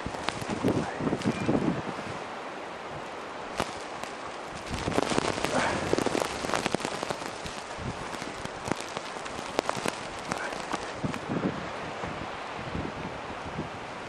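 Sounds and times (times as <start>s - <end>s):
crackling pattering taps: 0.0s - 1.5s, 3.0s - 11.3s
wind on microphone: 0.0s - 14.0s.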